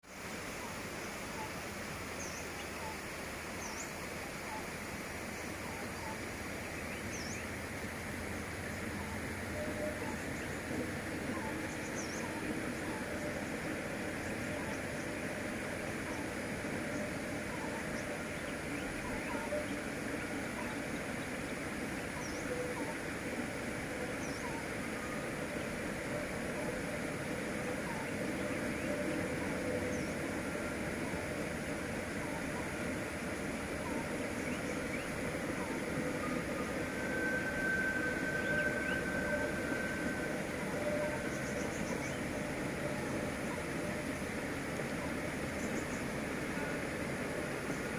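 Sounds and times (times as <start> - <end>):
train running: 0.2 - 47.9
faint bird chirps: 8.7 - 44.1.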